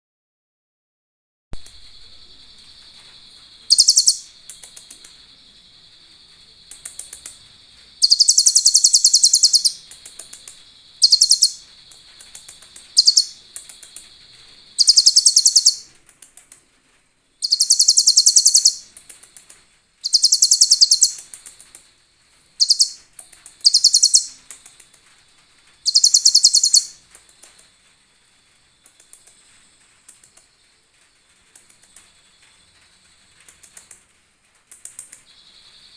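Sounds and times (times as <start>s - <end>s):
bird singing high trills: 3.7s - 4.4s, 8.0s - 9.9s, 11.0s - 11.7s, 13.0s - 13.5s, 14.7s - 15.9s, 17.4s - 18.9s, 20.0s - 21.2s, 22.6s - 23.0s, 23.6s - 24.4s, 25.9s - 27.0s.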